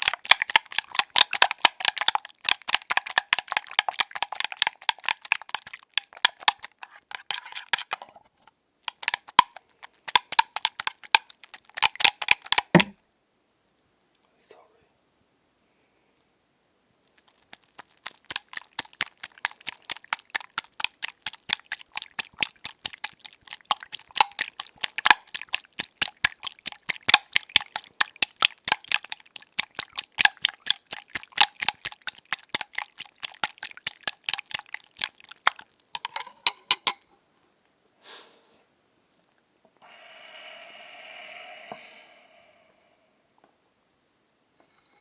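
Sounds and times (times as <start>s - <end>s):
utensil beating eggs in a bowl: 0.0s - 8.2s, 8.8s - 13.0s, 17.1s - 36.3s, 39.8s - 42.6s.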